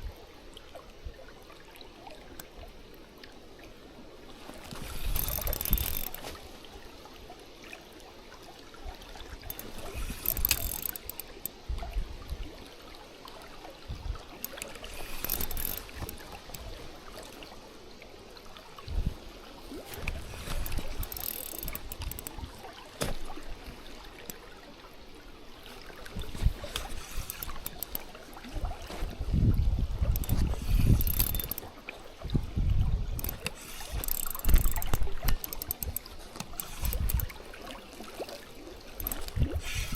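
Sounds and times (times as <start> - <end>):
shallow river water rushing: 0.0 - 39.9
wind buffeting microphone: 28.6 - 31.4.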